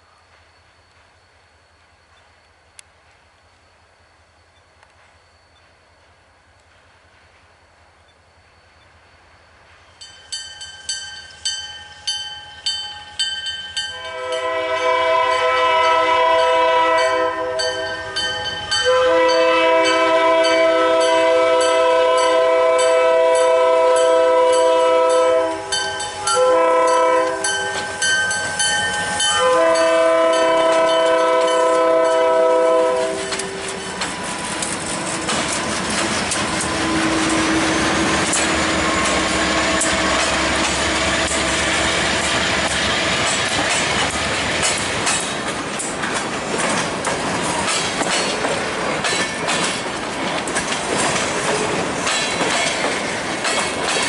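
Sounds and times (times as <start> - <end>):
locomotives rumbling past: 13.8 - 54.0
locomotive air horn blasts: 13.9 - 28.1, 29.2 - 33.8, 36.7 - 41.9
train wheels clattering over rails: 27.3 - 54.0.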